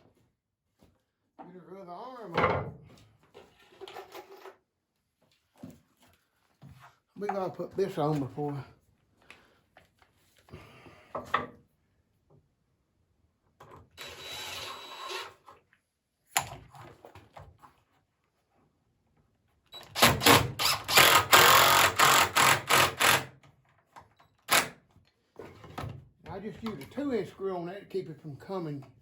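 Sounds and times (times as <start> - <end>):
power drill driving screw into wood: 14.0 - 15.4, 19.8 - 23.4, 24.4 - 24.8.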